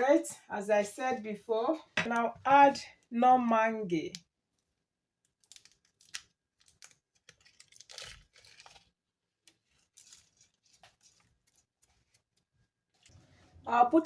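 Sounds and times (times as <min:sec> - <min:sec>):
small clicks and rustles: 0:04.5 - 0:13.4
wrappers crinkling and tearing: 0:05.4 - 0:13.2.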